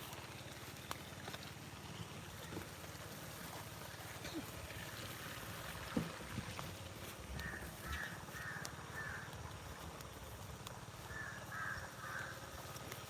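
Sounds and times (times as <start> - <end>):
crow cawing: 7.3 - 9.5, 11.0 - 12.8.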